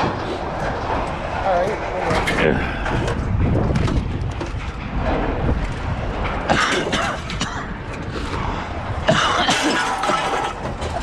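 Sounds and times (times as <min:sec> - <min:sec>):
steady low rumble: 0:00.0 - 0:11.0
scrap metal clattering onto pile: 0:09.4 - 0:11.0.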